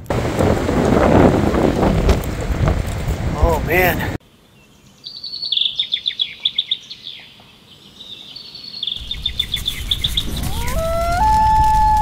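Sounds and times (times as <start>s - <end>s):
songbird trilling: 4.6s - 10.4s.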